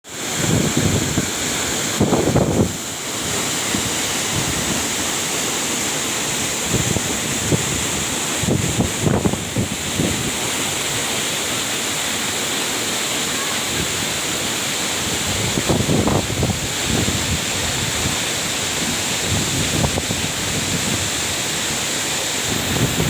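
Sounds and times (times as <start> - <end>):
waterfall rushing: 0.0 - 23.0
wind buffeting microphone: 0.3 - 5.2, 6.4 - 10.6, 15.0 - 21.8, 22.4 - 23.0.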